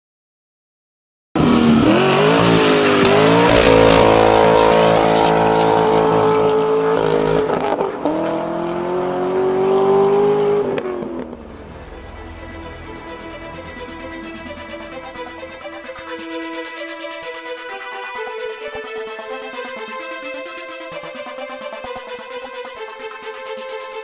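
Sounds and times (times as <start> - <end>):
car engine accelerating hard: 1.4 - 16.6.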